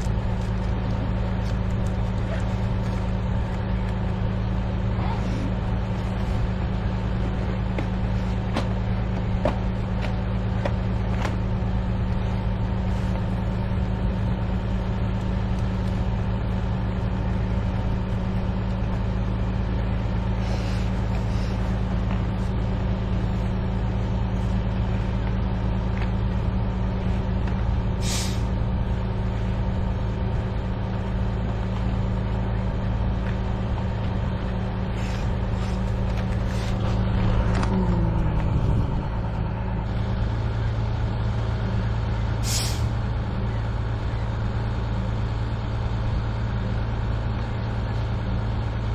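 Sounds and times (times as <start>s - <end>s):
low mechanical drone: 0.0s - 48.9s
brief hiss: 42.4s - 42.9s.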